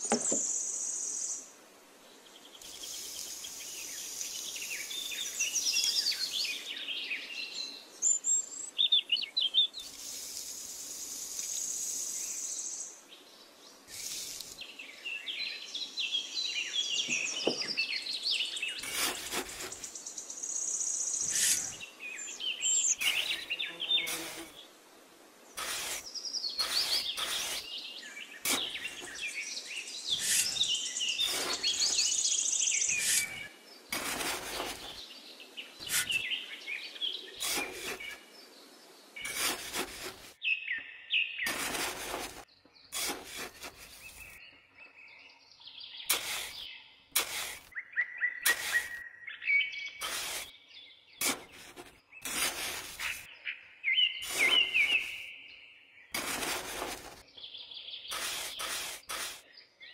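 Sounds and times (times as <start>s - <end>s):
small birds chirping: 0.0s - 24.8s, 25.4s - 59.9s
trowel scraping damp sand: 13.9s - 14.6s, 18.7s - 20.1s, 21.2s - 21.9s, 22.7s - 24.6s, 25.6s - 29.4s, 30.1s - 35.1s, 35.8s - 36.4s, 37.4s - 38.3s, 39.2s - 40.4s, 41.4s - 44.4s, 46.1s - 47.8s, 48.4s - 49.0s, 50.0s - 50.5s, 51.2s - 53.3s, 54.2s - 55.3s, 56.1s - 57.3s, 58.1s - 59.5s.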